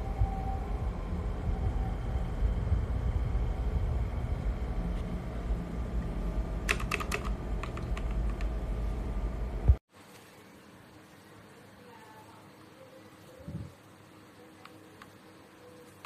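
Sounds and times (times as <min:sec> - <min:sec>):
steady low rumble: 0:00.0 - 0:09.8
mechanical keyboard typing: 0:06.6 - 0:08.5.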